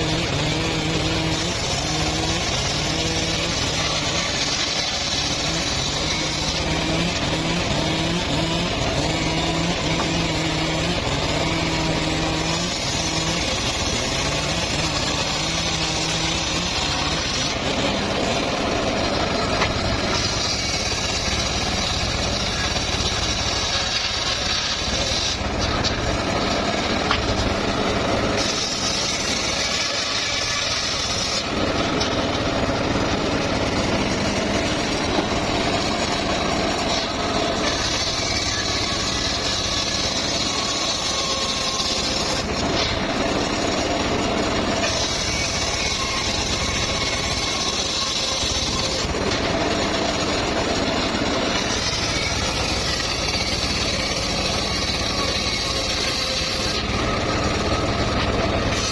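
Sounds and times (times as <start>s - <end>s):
engine-powered saw running: 0.0s - 58.9s
saw blade cutting whine: 0.0s - 58.9s.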